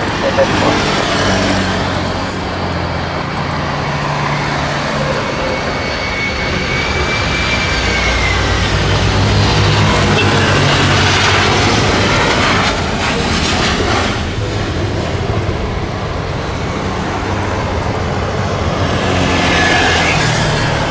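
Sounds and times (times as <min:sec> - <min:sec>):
faint high whine: 0:00.0 - 0:01.0
jet engines roaring: 0:00.0 - 0:20.9.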